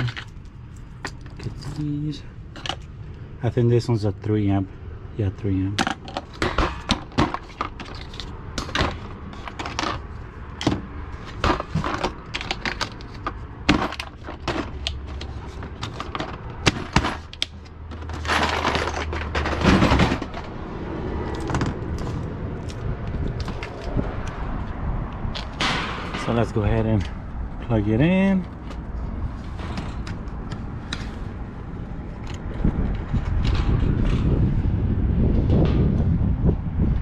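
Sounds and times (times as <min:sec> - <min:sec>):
small hard parts clicking and clattering: 0:00.0 - 0:01.9, 0:05.8 - 0:20.5.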